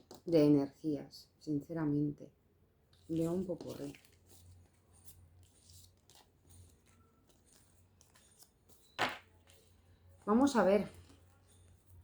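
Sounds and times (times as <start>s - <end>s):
cards rustling and tapping: 3.0s - 10.0s.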